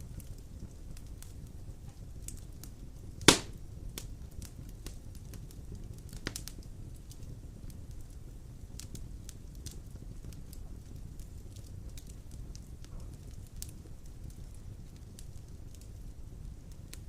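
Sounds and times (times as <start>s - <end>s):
fire crackling: 0.0s - 17.0s
low rumble of flame: 0.0s - 17.0s
sharp pop of burning log: 3.2s - 3.6s, 6.2s - 6.5s.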